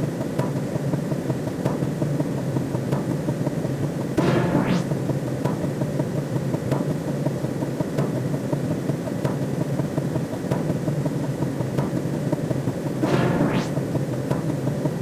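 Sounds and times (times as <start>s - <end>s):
steady low drone: 4.2s - 5.4s, 13.0s - 14.2s.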